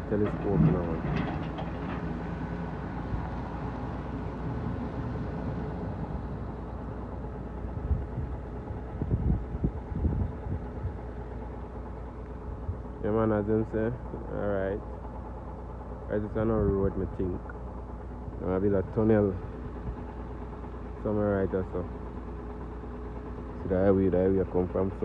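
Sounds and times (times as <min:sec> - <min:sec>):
low thumps and rumbles: 0:00.0 - 0:04.9, 0:06.9 - 0:14.3
diesel truck engine running: 0:00.0 - 0:25.0.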